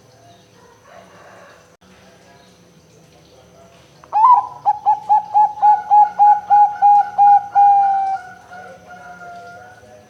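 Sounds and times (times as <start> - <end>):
dove cooing: 4.1 - 10.0.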